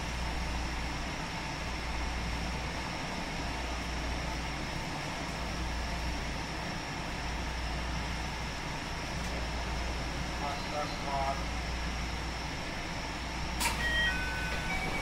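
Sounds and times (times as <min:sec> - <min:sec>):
train wheels rumbling on rail: 0:00.0 - 0:15.0
faint high whine: 0:13.6 - 0:15.0.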